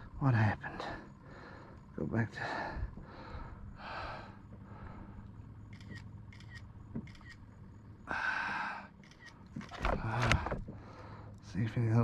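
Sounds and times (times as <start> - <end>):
camera shutter clicking: 5.7 - 7.4, 9.0 - 9.9.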